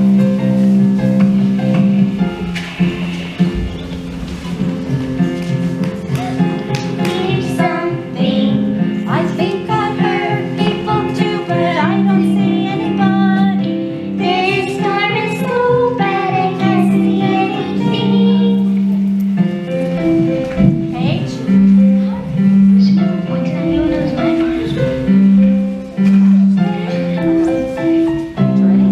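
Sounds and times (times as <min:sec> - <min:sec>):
instrumental accompaniment: 0:00.0 - 0:28.9
children singing: 0:06.2 - 0:18.8.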